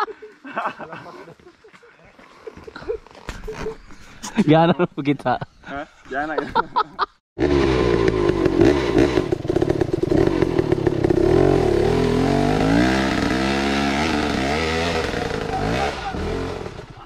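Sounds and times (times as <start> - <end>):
dirt bike engine revving: 7.4 - 17.0.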